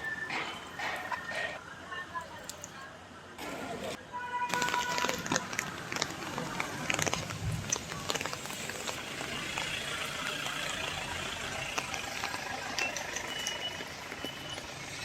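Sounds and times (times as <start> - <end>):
steady rain falling: 4.5 - 15.0.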